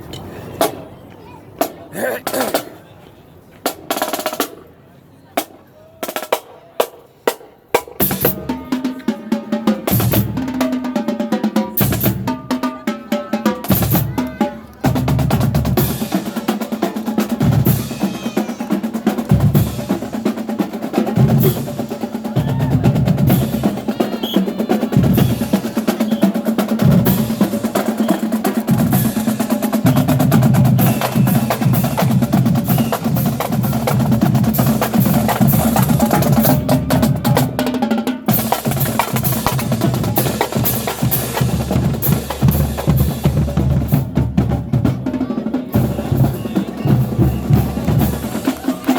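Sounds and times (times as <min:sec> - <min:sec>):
snare drum strokes and rolls: 0:05.4 - 0:48.9
bass drums: 0:38.3 - 0:45.1.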